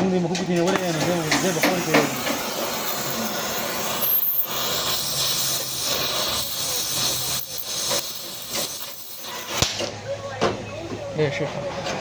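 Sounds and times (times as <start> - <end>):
loud hissing noise: 0.6 - 10.0.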